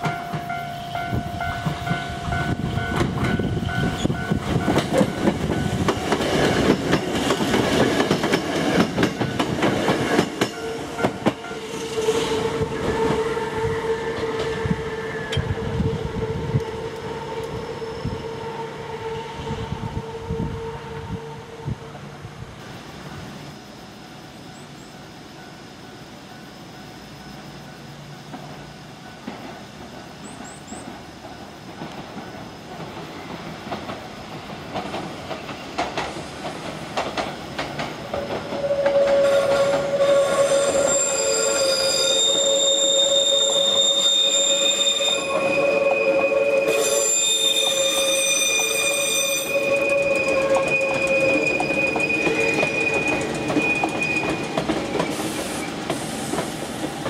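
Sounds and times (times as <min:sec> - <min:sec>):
electric train passing: 0:00.0 - 0:57.0
wheels clacking over rails: 0:01.5 - 0:11.7, 0:48.7 - 0:57.0
high wheel squeal: 0:38.2 - 0:56.5.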